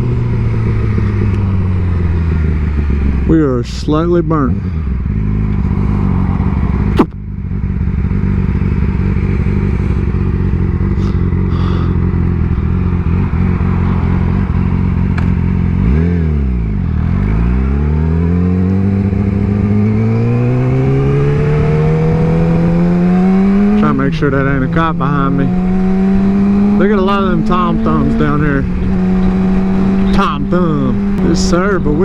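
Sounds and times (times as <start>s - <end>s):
motorcycle engine running: 0.0s - 32.0s
wind noise: 25.4s - 32.0s.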